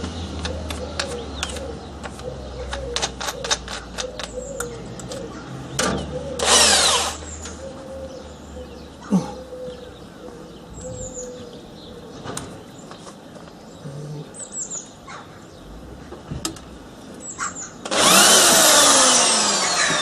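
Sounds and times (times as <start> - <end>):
parts clicking and knocking: 0.0 - 6.7
power drill driving a screw: 6.4 - 7.3, 17.8 - 20.0.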